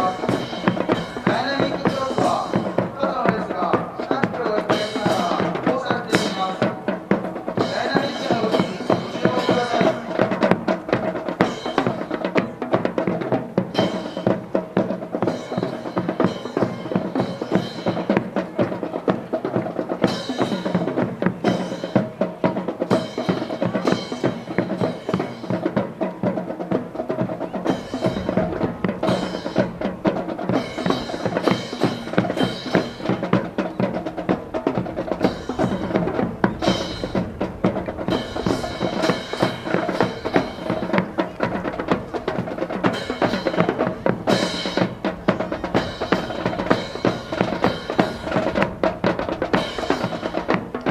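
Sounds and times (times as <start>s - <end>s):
steady held tones: 21.9s - 50.9s
bass drum beats: 26.8s - 50.9s.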